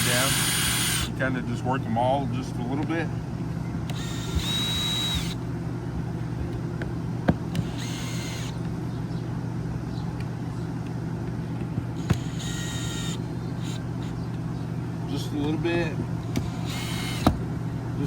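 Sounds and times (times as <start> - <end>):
drill driving screws: 0.0 - 1.1, 3.9 - 5.4, 7.6 - 8.6, 12.0 - 13.8, 16.4 - 17.3.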